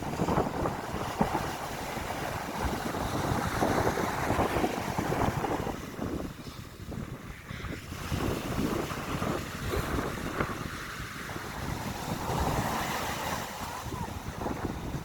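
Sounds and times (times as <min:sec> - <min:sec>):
waves breaking on beach: 0:00.0 - 0:15.0
wind buffeting microphone: 0:00.0 - 0:15.0.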